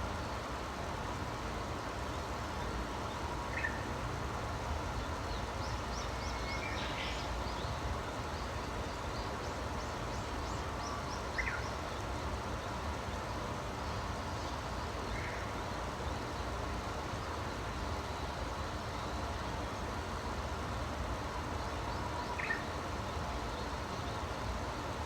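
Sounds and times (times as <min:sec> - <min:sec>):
small birds chirping: 0:04.8 - 0:12.8.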